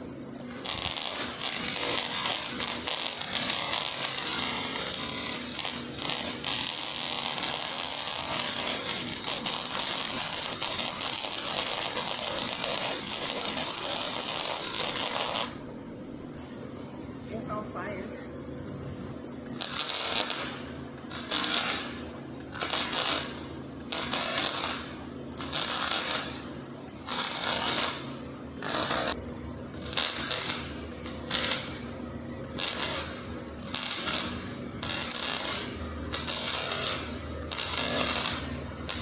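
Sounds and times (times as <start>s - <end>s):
welding arc crackling: 0.0s - 15.6s, 19.4s - 39.0s
low steady hum: 14.3s - 19.6s, 26.4s - 33.8s.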